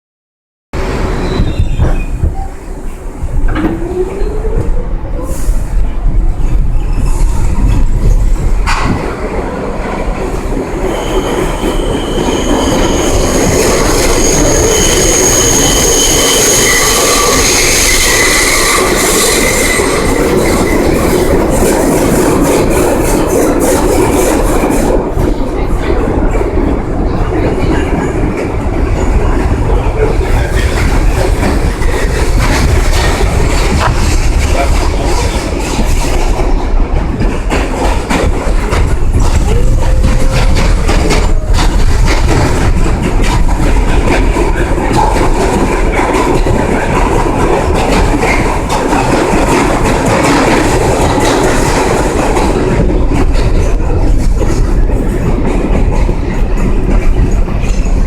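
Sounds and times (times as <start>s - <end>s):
subway train running through tunnel: 0.8s - 58.0s
high-pitched wheel squeal: 1.1s - 2.2s, 10.8s - 21.0s.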